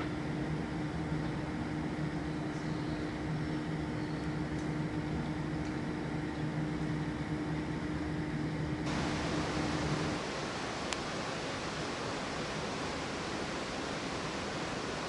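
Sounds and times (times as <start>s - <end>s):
standing train mechanical hum: 0.0s - 15.0s
loud even hiss: 8.9s - 15.0s.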